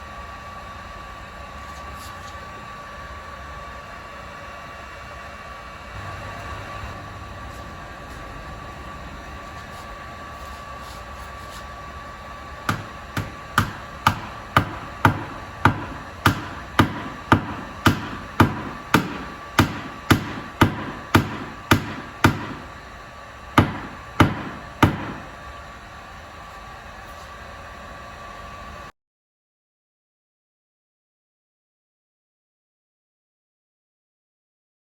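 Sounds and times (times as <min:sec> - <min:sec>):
hammer tapping sheet metal: 0:12.7 - 0:22.9, 0:23.6 - 0:25.4.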